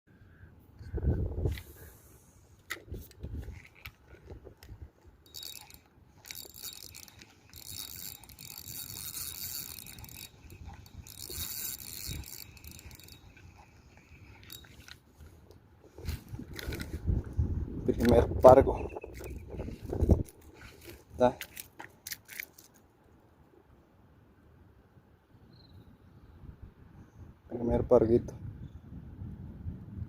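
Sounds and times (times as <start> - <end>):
reel clicks: 2.6 - 17.2, 17.9 - 22.8
fishing reel whirring: 5.2 - 15.0.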